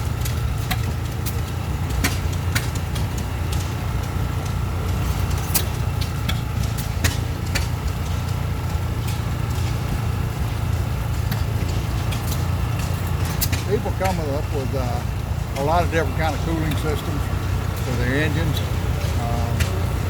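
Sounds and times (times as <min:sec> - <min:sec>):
sharp clicks and ticks: 0:00.0 - 0:20.0
vehicle engine running: 0:00.0 - 0:20.0.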